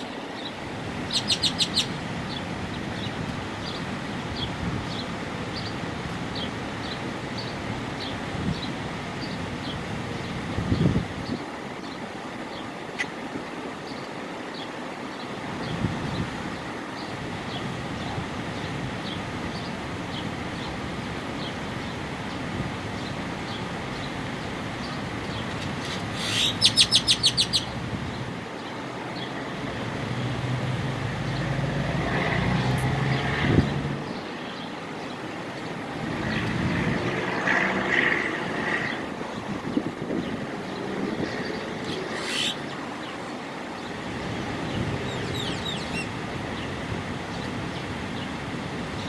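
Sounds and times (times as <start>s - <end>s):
bird calling sharp notes: 1.0s - 2.0s, 25.6s - 27.8s, 41.8s - 43.1s
faint bird chirps: 1.1s - 2.0s, 25.6s - 27.8s, 41.9s - 44.0s.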